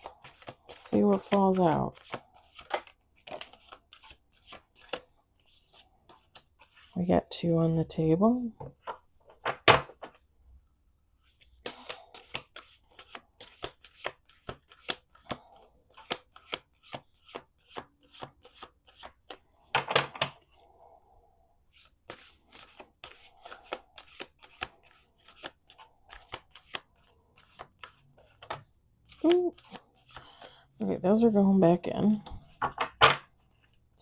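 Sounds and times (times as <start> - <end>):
cards being shuffled: 0.1 - 6.9, 11.2 - 20.0, 21.7 - 30.5.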